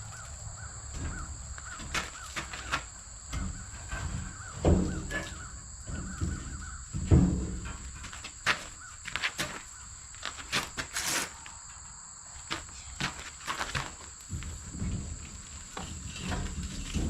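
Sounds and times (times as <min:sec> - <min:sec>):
high-pitched insect drone: 0:00.0 - 0:07.1.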